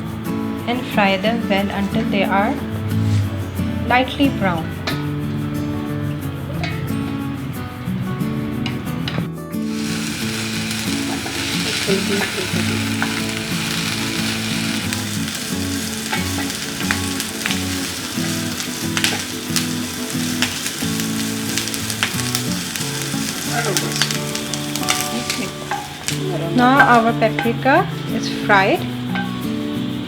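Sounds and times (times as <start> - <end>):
peppers sizzling in a frying pan: 9.6 - 30.0.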